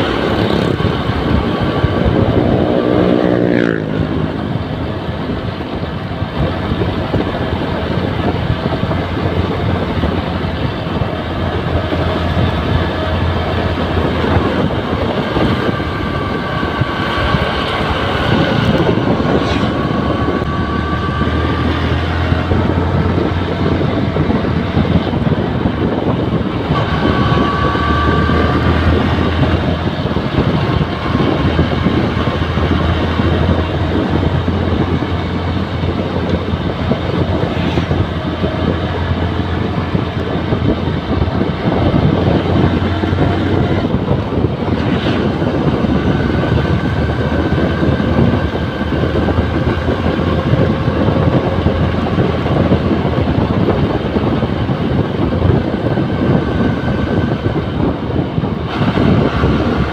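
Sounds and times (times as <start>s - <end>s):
faint rising whine: 0.0s - 59.9s
motorcycle engine running: 0.0s - 59.9s
wind and road noise: 0.0s - 59.9s.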